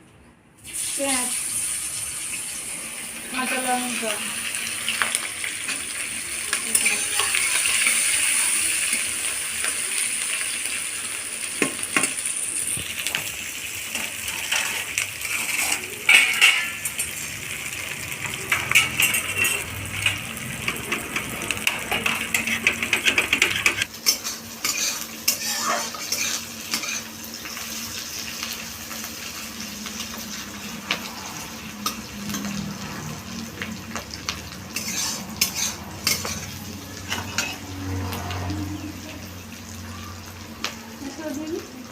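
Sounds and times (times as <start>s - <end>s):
onions sizzling in hot oil: 0.6s - 41.9s
metal spatula scraping a pan: 6.6s - 9.0s, 13.9s - 17.2s, 18.5s - 27.2s, 34.7s - 38.4s.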